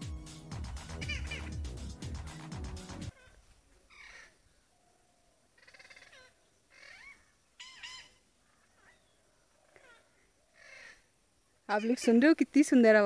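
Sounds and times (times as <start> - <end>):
faint bird calling: 1.0 - 1.6, 3.1 - 12.2.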